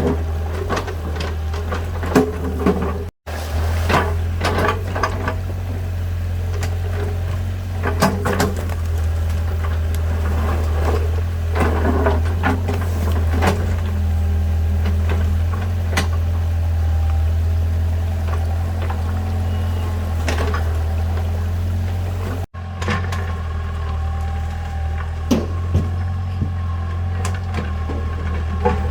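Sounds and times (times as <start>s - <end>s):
low engine rumble: 0.0s - 28.9s
knocks and clatters: 20.1s - 28.9s.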